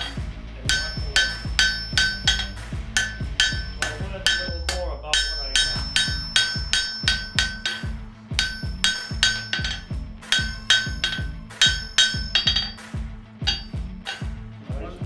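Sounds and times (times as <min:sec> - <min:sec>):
hammer striking metal on anvil: 0:00.0 - 0:14.4.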